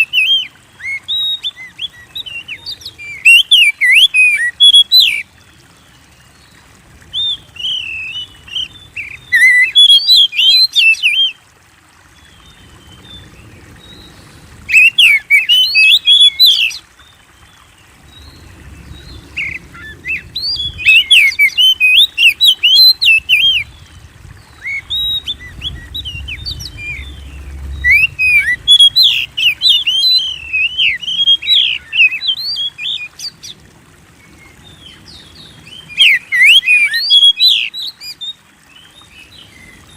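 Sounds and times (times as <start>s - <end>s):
bird singing whistled phrases: 0.0s - 5.2s, 7.1s - 11.4s, 14.7s - 16.8s, 19.0s - 23.8s, 24.6s - 33.4s, 35.9s - 38.4s.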